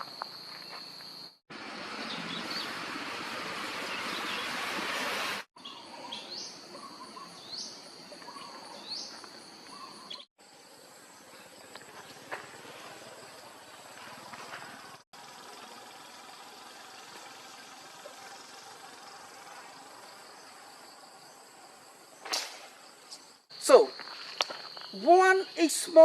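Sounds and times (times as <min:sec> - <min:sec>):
insect drone: 0:05.6 - 0:26.0.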